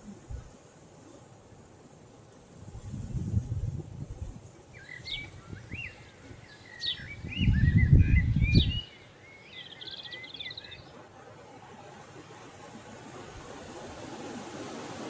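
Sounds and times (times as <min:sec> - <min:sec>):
songbird chirping and trilling: 0:04.7 - 0:11.0.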